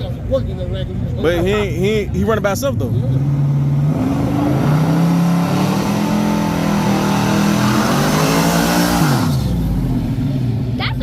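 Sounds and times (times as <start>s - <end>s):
race car engine accelerating: 2.3s - 10.4s.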